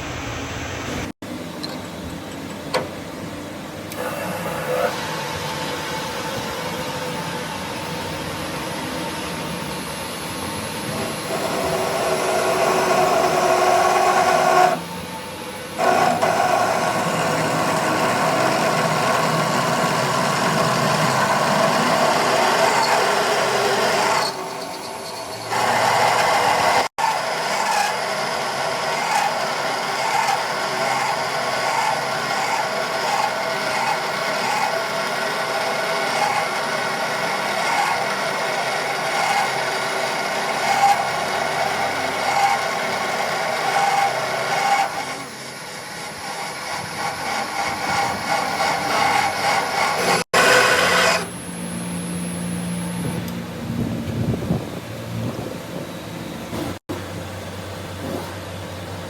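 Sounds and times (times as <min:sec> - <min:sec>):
power tool grinding metal: 0:10.8 - 0:14.8, 0:15.8 - 0:51.4.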